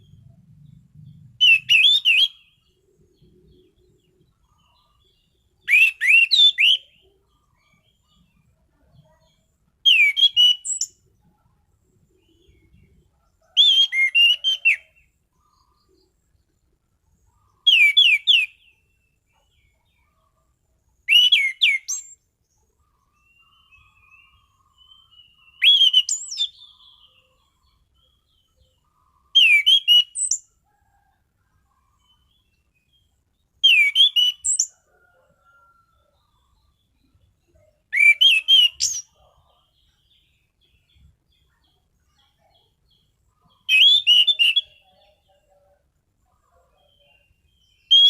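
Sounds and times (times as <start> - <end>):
thrush whistling song: 1.3 - 2.6, 5.6 - 7.1, 9.8 - 11.0, 13.5 - 14.9, 17.6 - 18.8, 21.0 - 22.2, 23.4 - 26.8, 29.3 - 30.5, 33.6 - 35.1, 37.9 - 39.2, 43.6 - 44.8, 47.7 - 48.0
soft bird twittering: 17.2 - 48.0.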